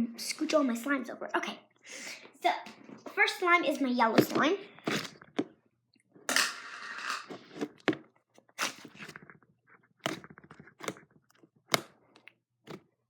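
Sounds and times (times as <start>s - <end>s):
slime clicking and crackling: 8.6s - 9.4s, 10.0s - 12.9s.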